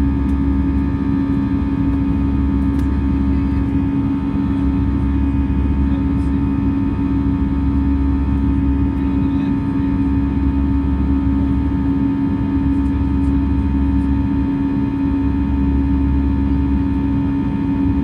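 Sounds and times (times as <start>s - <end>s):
jet engine cabin drone: 0.0s - 18.0s.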